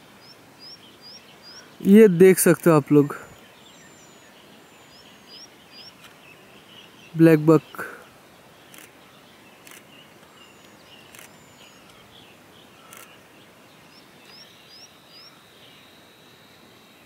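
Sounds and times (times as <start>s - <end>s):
faint bird calls: 3.0s - 16.8s
short rising bird chirps: 9.6s - 13.2s.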